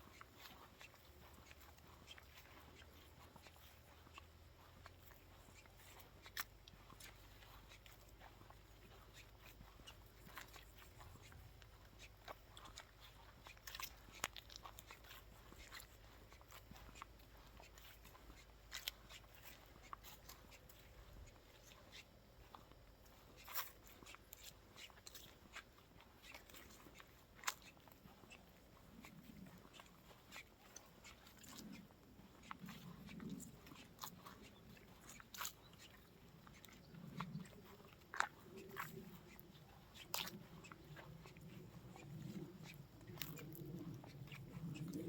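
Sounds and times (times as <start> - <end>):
faint wind rumble on microphone: 30.8 - 45.0.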